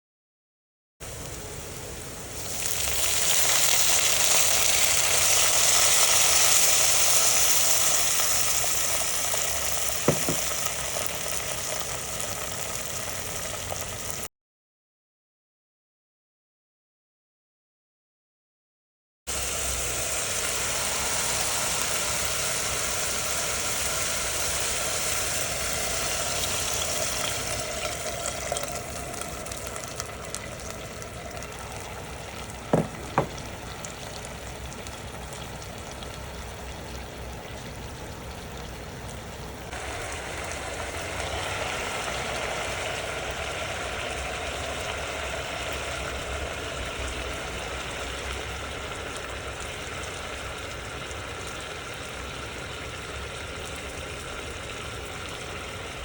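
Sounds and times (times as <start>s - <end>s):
food sizzling in a pan: 1.0s - 14.3s, 19.3s - 38.3s, 39.3s - 56.0s
sharp knocks: 10.0s - 10.6s, 32.7s - 33.6s.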